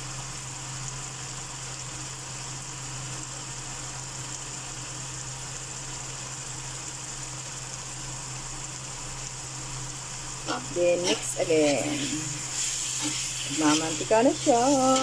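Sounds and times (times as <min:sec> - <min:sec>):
meat sizzling in oil: 0:00.0 - 0:15.0
constant low hum: 0:07.1 - 0:15.0.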